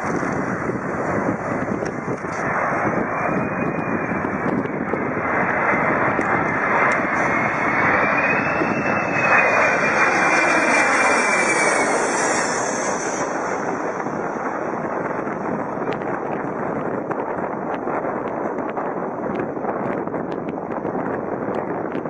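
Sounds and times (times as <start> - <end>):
aircraft engine running: 0.0 - 22.0.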